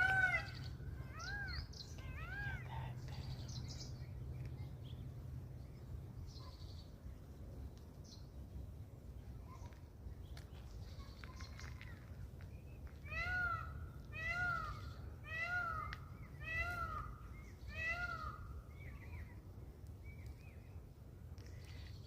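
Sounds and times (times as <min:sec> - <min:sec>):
peafowl calling: 0:00.0 - 0:02.6, 0:13.1 - 0:18.4
faint small bird chirps: 0:09.4 - 0:12.9.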